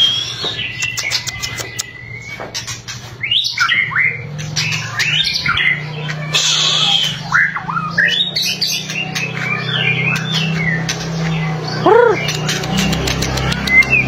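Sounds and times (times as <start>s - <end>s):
bird whistling song: 0.0s - 10.9s, 11.7s - 14.0s
bird dry clicking rattles: 0.8s - 1.9s, 12.3s - 14.0s.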